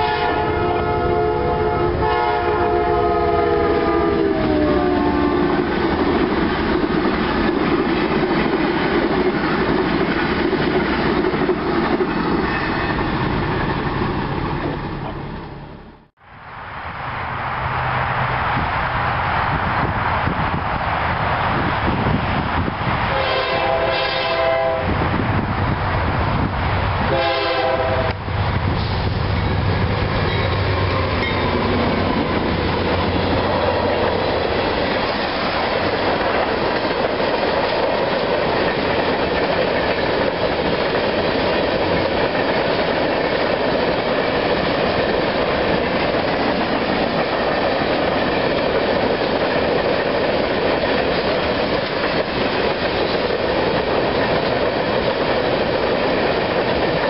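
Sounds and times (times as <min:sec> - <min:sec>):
train horn: 0:00.0 - 0:05.7, 0:23.1 - 0:25.0, 0:27.0 - 0:28.3
locomotive engines rumbling: 0:00.0 - 0:16.1, 0:17.0 - 0:57.0
wheels clacking on rails: 0:03.7 - 0:16.0, 0:27.4 - 0:57.0.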